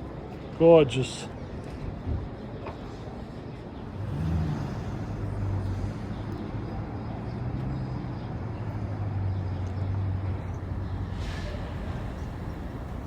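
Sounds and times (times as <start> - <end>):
street traffic: 0.0 - 13.0
vehicle engine humming: 4.0 - 13.0.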